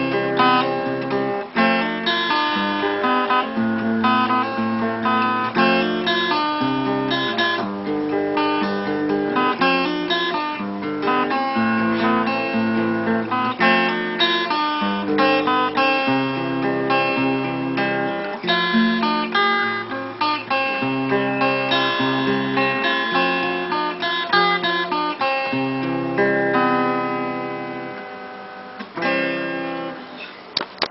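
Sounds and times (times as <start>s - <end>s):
acoustic guitar instrumental: 0.0s - 30.9s.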